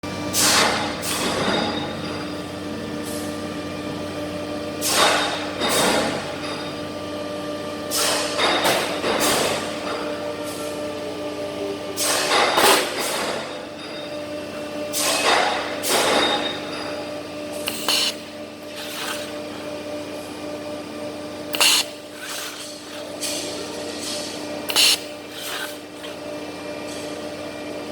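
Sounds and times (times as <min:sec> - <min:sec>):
welding machine hum: 0:08.2 - 0:27.9
short hissing bursts: 0:17.7 - 0:18.2, 0:21.6 - 0:22.6, 0:24.7 - 0:25.8.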